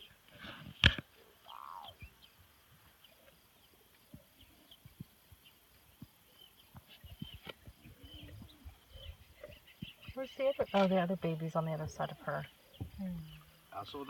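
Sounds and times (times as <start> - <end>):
soft low thumps: 11.6 - 13.5.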